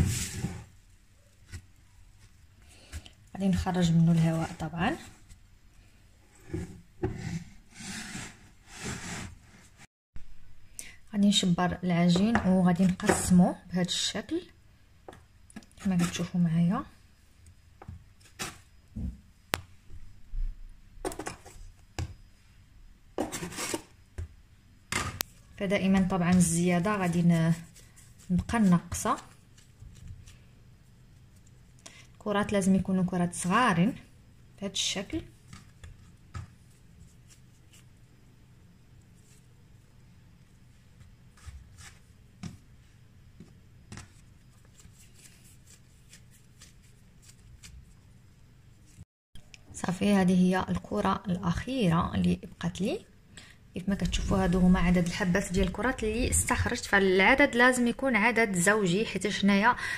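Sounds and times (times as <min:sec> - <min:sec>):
faint low hum: 0:10.2 - 0:59.9.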